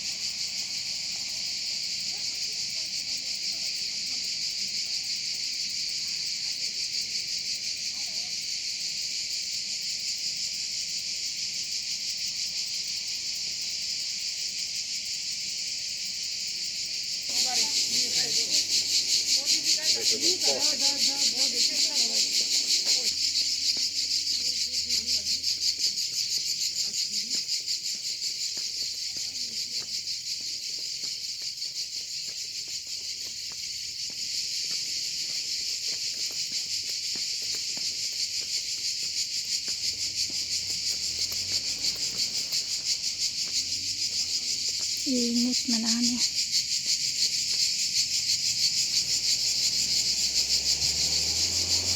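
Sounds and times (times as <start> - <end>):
high-pitched insect chorus: 0.0 - 51.9
faint footsteps: 17.3 - 46.2.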